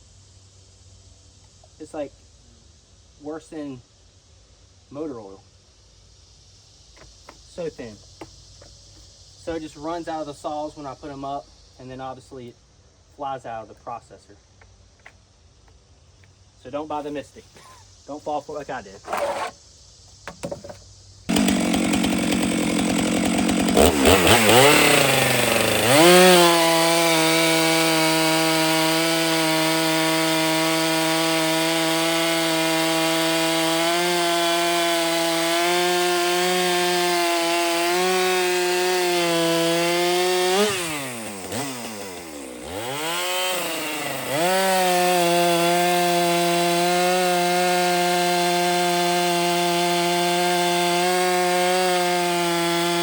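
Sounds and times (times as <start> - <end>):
chainsaw cutting logs: 19.0 - 19.6, 20.3 - 53.0.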